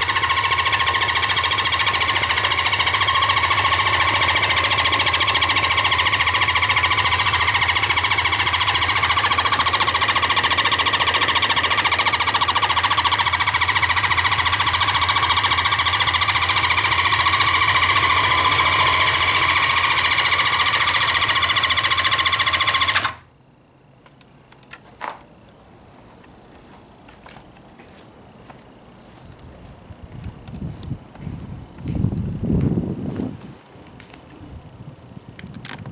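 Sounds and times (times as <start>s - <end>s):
motorcycle electric starter cranking: 0.0s - 23.3s.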